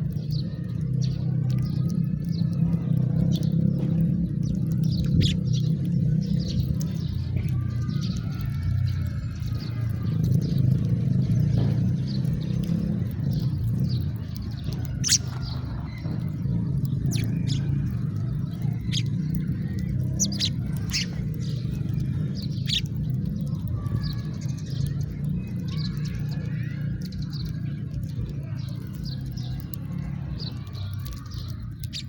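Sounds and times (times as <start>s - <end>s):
house sparrows chirping: 0.0s - 32.0s
steady low rumble: 0.0s - 32.0s.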